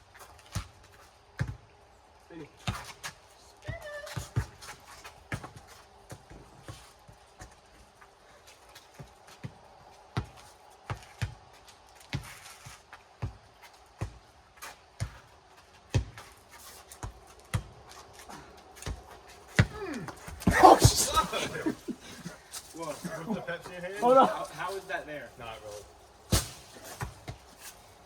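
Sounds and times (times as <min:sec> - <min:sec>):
rubber ball bouncing on pavement: 0:18.8 - 0:21.0.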